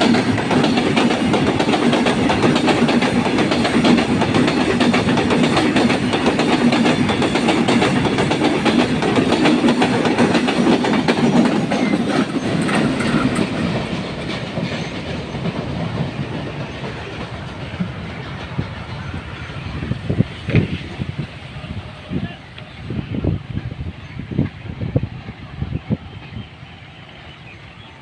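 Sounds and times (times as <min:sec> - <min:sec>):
train wheels clattering on rails: 0:00.0 - 0:21.5.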